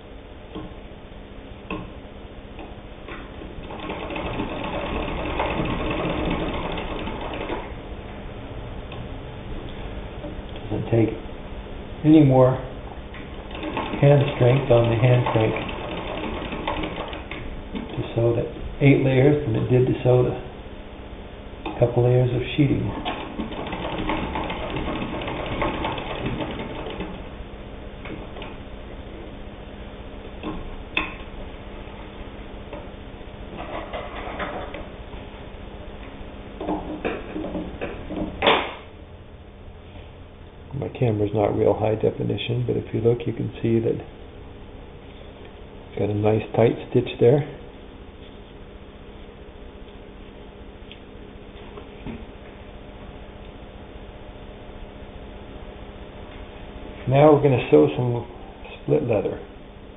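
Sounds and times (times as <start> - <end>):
sewing machine knocks: 3.6 - 7.6, 13.5 - 18.0, 23.0 - 27.2
sewing machine stitching: 3.6 - 7.7, 13.5 - 18.0, 22.9 - 27.2.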